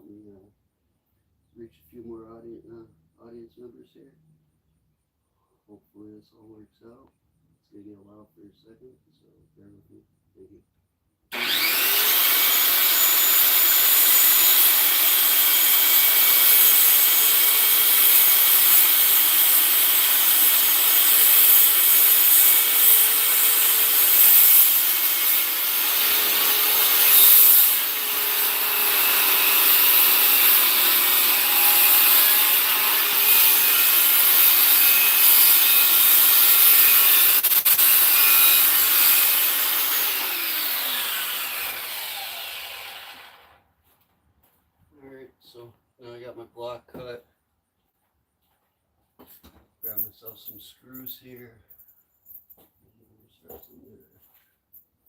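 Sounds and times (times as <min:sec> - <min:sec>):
electric power saw cutting wood: 0:11.3 - 0:43.6.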